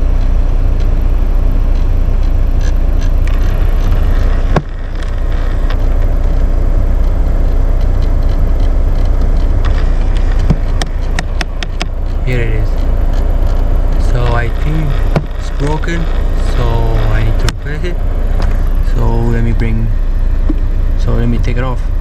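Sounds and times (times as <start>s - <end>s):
actuator clicking and knocking: 0.0s - 16.4s, 20.4s - 20.8s
vehicle ventilation hum: 0.0s - 22.0s.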